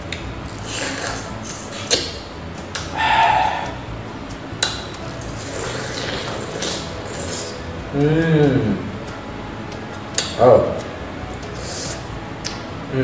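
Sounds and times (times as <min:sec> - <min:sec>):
mouth sound: 0:00.0 - 0:03.9, 0:04.6 - 0:09.0, 0:11.6 - 0:13.0
wet biting and chewing: 0:04.6 - 0:07.6
sharp mouth click: 0:10.2 - 0:10.4, 0:11.6 - 0:12.6.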